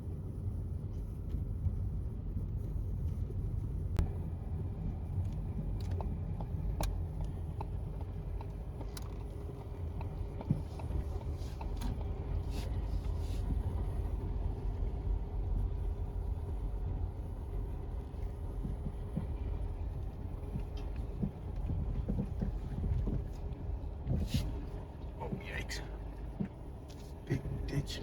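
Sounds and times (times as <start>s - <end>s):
car road and engine rumble: 0.0s - 28.0s
light clicks and ticks: 5.2s - 14.0s.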